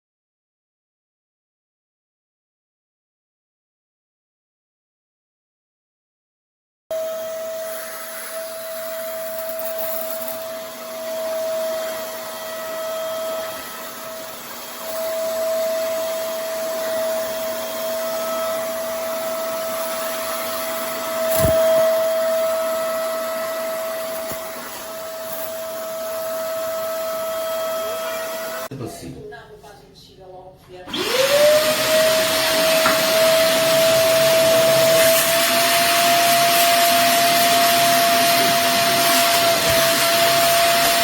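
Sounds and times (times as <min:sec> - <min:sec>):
vacuum suction motor whine: 0:10.4 - 0:28.7, 0:30.9 - 0:41.0.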